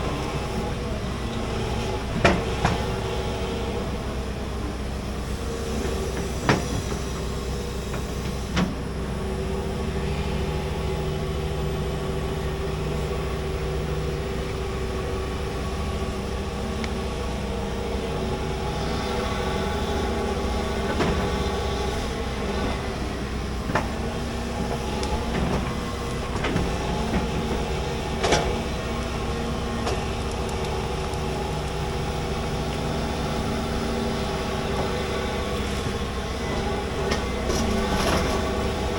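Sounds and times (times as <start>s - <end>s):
excavator engine and hydraulics drone: 0.0s - 38.9s.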